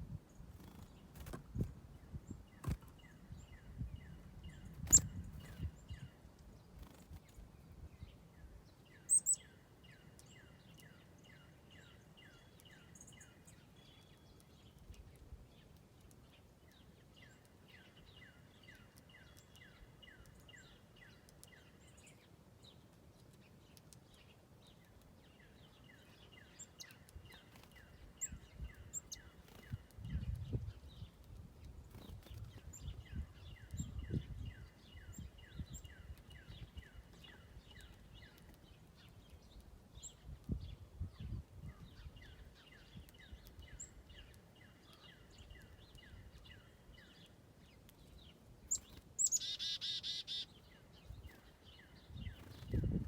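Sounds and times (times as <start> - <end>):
high bird chirps: 2.6 - 6.1, 9.0 - 9.6, 48.7 - 50.5.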